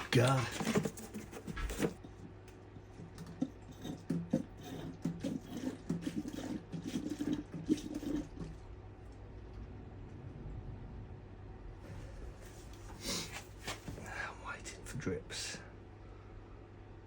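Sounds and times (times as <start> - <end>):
coolant glugging into radiator: 3.1 - 9.5.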